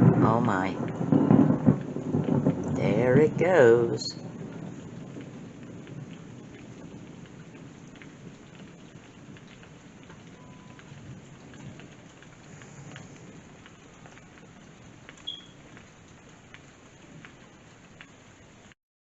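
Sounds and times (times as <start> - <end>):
low thunder rumble: 0.0 - 15.7
rain falling: 0.0 - 18.8
drips ticking: 4.5 - 18.2.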